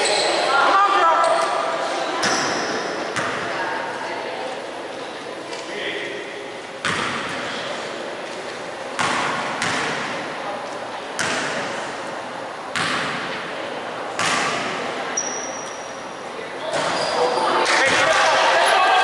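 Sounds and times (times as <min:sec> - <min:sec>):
basketball bouncing on gym floor: 0:06.8 - 0:07.4, 0:09.0 - 0:10.2, 0:11.2 - 0:11.7, 0:12.7 - 0:13.4, 0:14.2 - 0:14.8.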